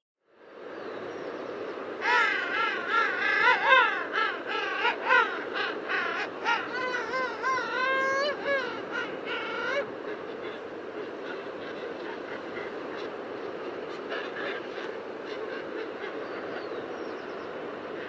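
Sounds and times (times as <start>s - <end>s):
steady background hiss: 0.3s - 18.0s
penguin honking calls: 2.0s - 9.9s.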